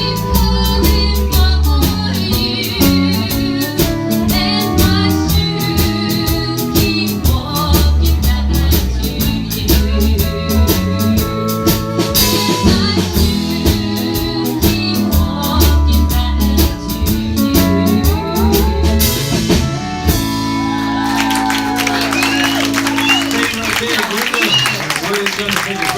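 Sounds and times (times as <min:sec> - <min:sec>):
person singing: 0:00.0 - 0:19.6
guitar: 0:00.0 - 0:24.7
bass guitar: 0:00.0 - 0:24.8
drums keeping a steady beat: 0:00.0 - 0:25.9.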